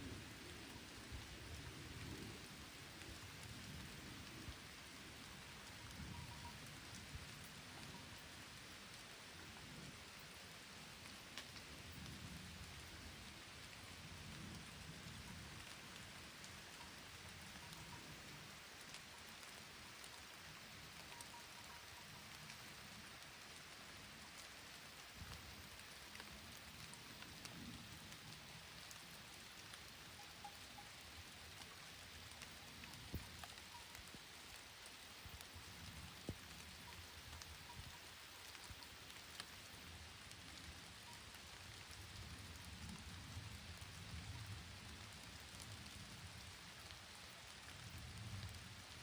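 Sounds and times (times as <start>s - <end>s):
rain falling on leaves: 0.0s - 49.0s
raindrop ticks: 0.0s - 49.0s.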